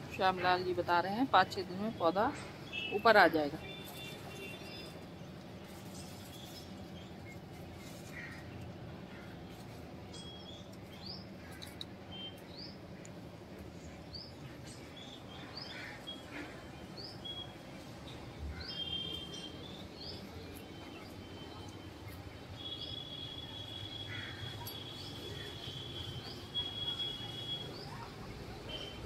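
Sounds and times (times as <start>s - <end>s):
birds chirping: 13.7s - 29.0s.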